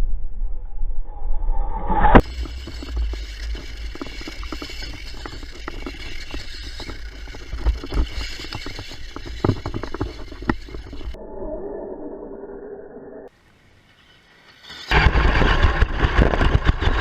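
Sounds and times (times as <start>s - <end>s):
low rumble: 0.0s - 8.4s, 9.0s - 13.3s
clatter of small knocks: 2.2s - 11.2s.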